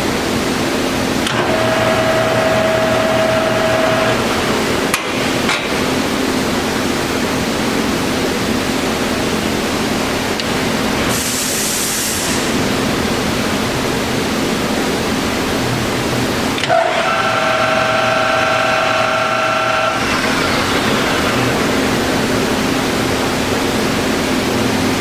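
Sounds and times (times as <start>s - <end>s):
lathe running hum: 0.8s - 9.4s, 16.6s - 25.0s.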